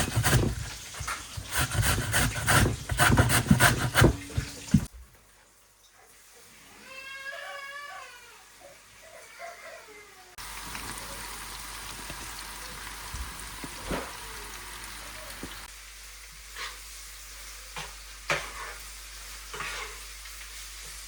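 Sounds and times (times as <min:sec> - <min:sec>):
food sizzling in a pan: 0:10.4 - 0:21.0.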